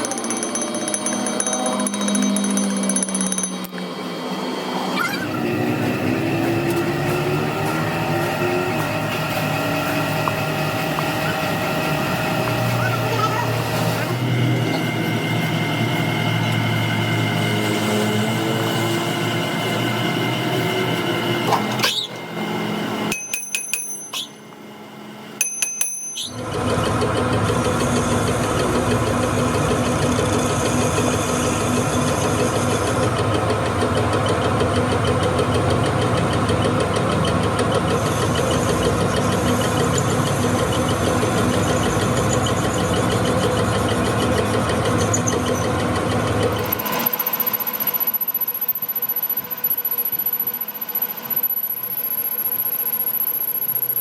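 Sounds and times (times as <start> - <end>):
sharp metal clinks: 0.0 - 3.8, 23.1 - 24.4, 25.4 - 26.4
workshop machine running: 0.0 - 54.0.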